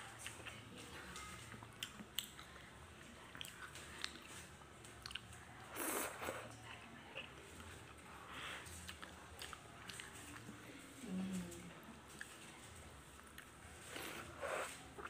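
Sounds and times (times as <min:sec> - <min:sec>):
person chewing noodles: 0:05.0 - 0:06.5, 0:07.3 - 0:10.5
slurping noodles: 0:05.7 - 0:06.5, 0:13.9 - 0:15.0.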